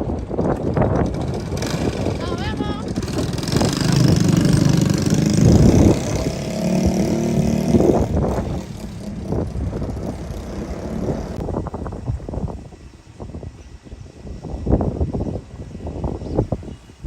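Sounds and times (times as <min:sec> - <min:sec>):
vehicle passing rumble: 0:00.0 - 0:11.8.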